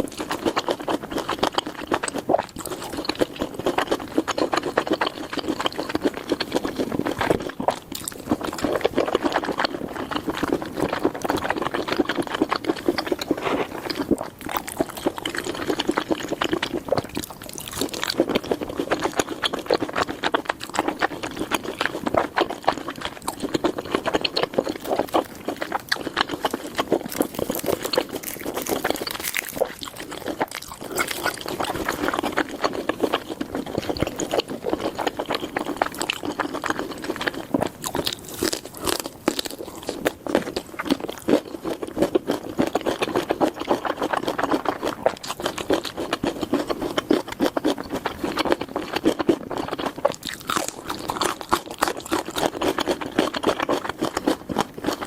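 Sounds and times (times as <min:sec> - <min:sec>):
steak crackling and crunching: 0:11.4 - 0:19.6, 0:24.2 - 0:46.1, 0:50.0 - 0:54.0.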